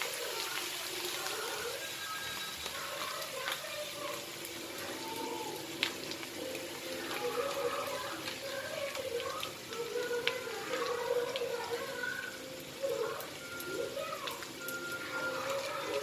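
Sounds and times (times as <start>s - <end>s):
potatoes sizzling in oil: 0.0s - 16.0s
background music with melody: 6.0s - 16.0s.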